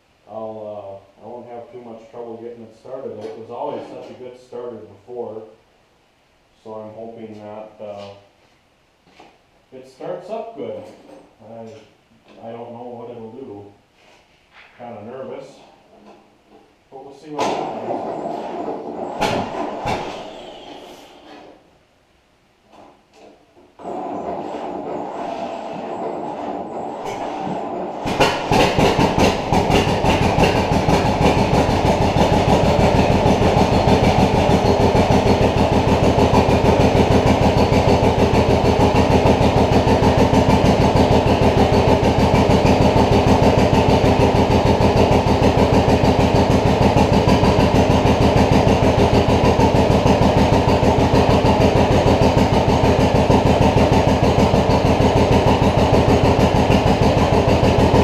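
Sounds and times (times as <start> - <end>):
engine running with rapid pulsing: 28.0 - 58.0
tractor engine cranking: 28.0 - 58.0.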